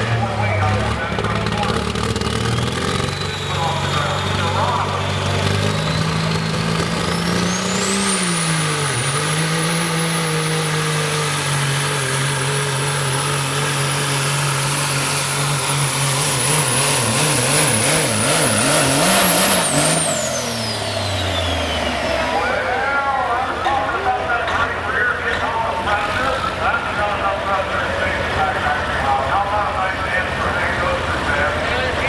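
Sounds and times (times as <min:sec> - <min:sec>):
diesel truck engine at full power: 0:00.0 - 0:32.0
high turbo whistle: 0:05.6 - 0:11.1.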